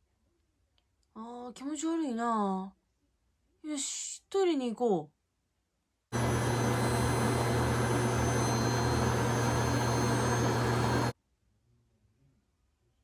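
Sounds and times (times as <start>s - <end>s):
vacuum cleaner motor running: 6.2s - 11.1s.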